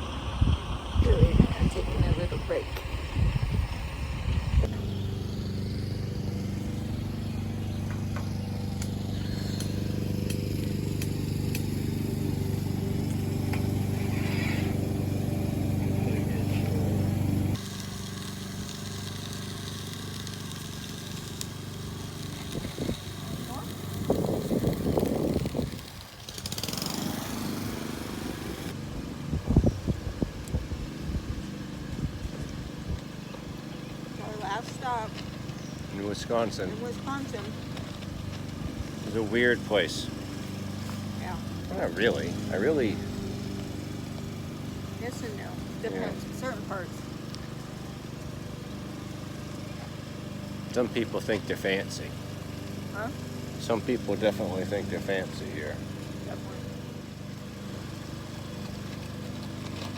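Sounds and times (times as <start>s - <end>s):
vehicle engine humming: 0.0s - 59.9s.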